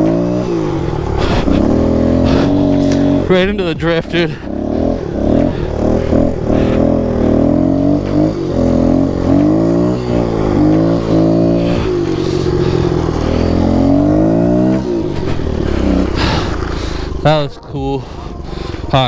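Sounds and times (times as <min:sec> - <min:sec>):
pit bike engine revving: 0:00.0 - 0:19.0.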